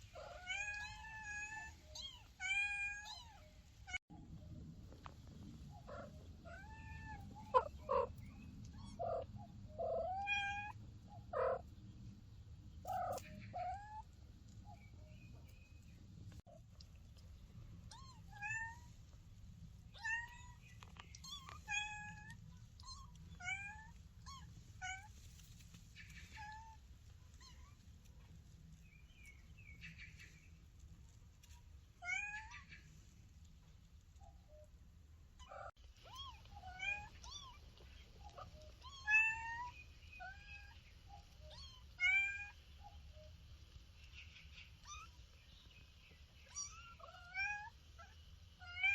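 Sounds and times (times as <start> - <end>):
kitten mewing: 5.8 - 8.2.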